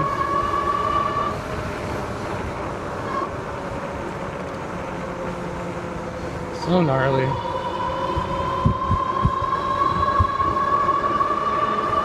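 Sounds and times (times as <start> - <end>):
wind rushing over microphone: 6.5 - 12.0.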